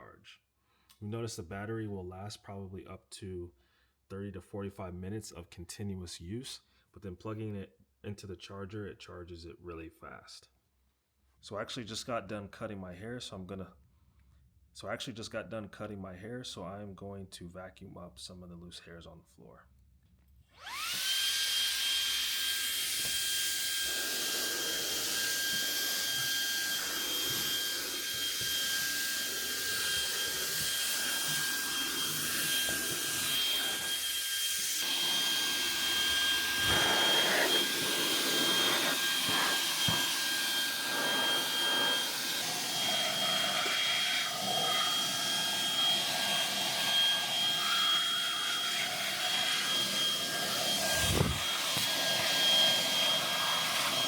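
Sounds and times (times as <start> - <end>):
handheld vacuum motor whining: 20.5 - 54.0
vacuum air rushing: 23.7 - 45.1, 49.4 - 54.0.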